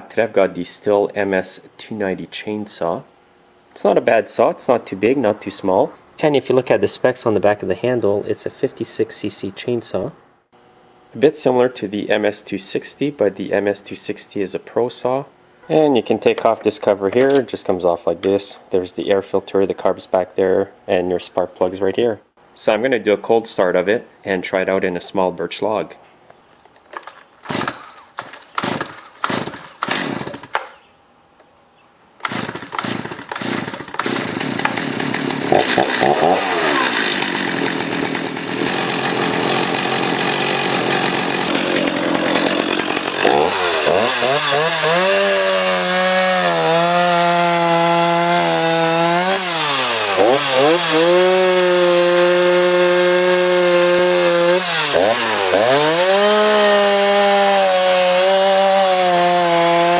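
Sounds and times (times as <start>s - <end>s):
chainsaw starter cord pulls: 26.7s - 30.7s, 32.2s - 59.9s
chainsaw cutting log: 26.9s - 30.8s, 32.2s - 59.9s
chainsaw engine running: 27.0s - 30.6s, 32.2s - 59.9s.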